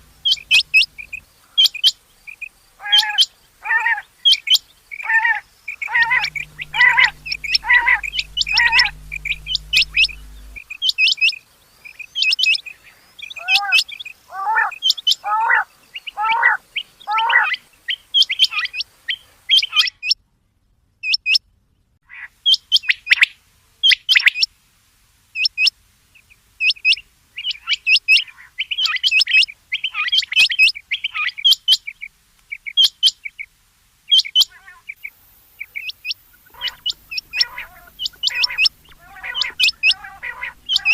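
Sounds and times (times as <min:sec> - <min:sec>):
low steady hum: 0:00.0 - 0:01.5, 0:05.7 - 0:11.0, 0:35.1 - 0:40.9
quail calling: 0:00.0 - 0:02.0, 0:02.8 - 0:04.4, 0:05.0 - 0:10.8, 0:13.4 - 0:17.6, 0:34.1 - 0:40.9.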